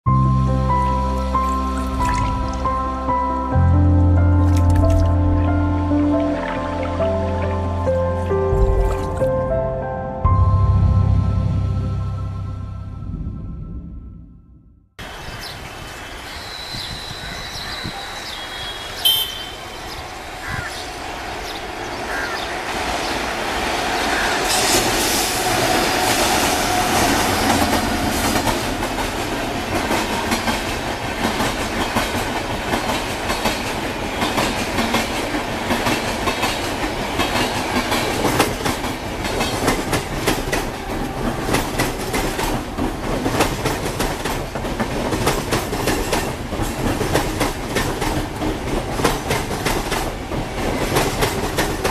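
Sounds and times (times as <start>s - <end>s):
brief high tone: 18.5s - 20.0s
train wheels clattering over rails: 24.0s - 51.9s.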